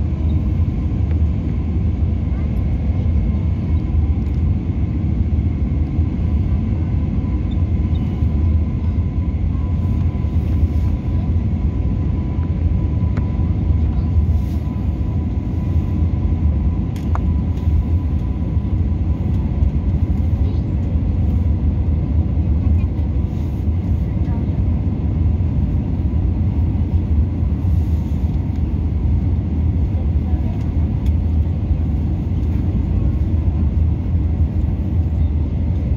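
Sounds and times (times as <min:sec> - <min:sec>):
aircraft engine rumble: 0:00.0 - 0:35.9.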